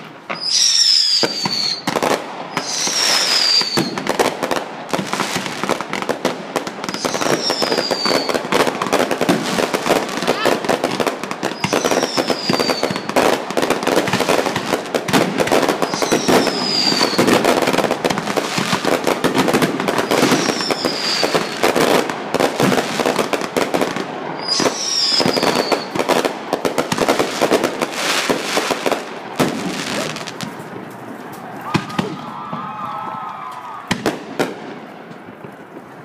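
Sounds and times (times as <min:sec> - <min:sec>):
fireworks pops and bangs: 0:00.0 - 0:36.0
falling firework whistles: 0:00.3 - 0:04.2, 0:06.8 - 0:08.7, 0:11.4 - 0:13.3, 0:15.4 - 0:17.8, 0:19.9 - 0:21.8, 0:24.4 - 0:26.1.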